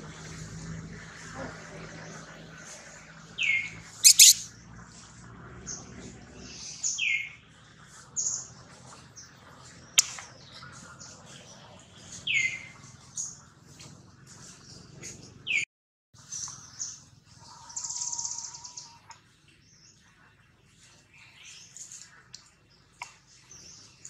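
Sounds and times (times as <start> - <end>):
birds chirping: 1.4 - 4.6, 5.6 - 13.5.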